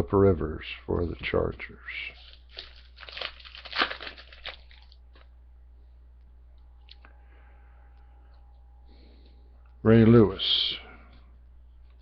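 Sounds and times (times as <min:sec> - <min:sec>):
wrapper crinkling and tearing: 0:02.2 - 0:05.3.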